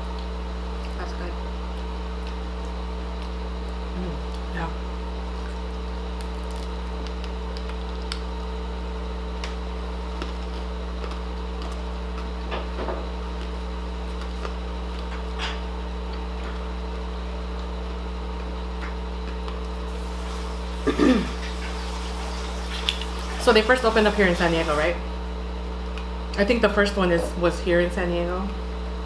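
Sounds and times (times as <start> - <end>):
electrical hum: 0.0 - 29.0
people eating: 19.9 - 25.0.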